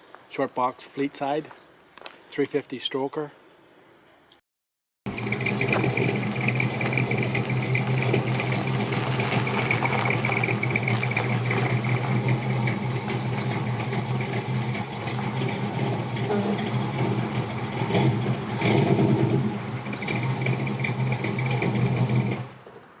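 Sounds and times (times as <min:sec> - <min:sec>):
pickup truck engine running: 0:05.1 - 0:22.7.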